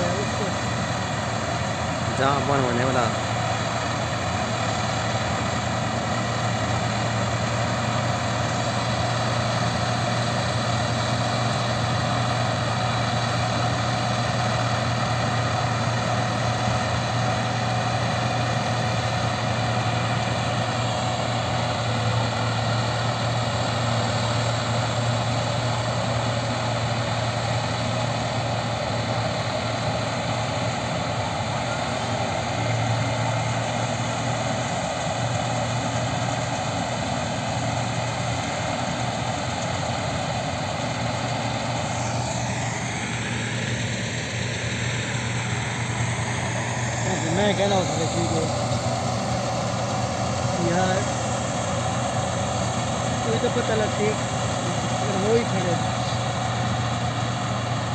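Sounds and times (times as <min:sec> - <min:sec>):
combine harvester droning: 0:00.0 - 0:57.9.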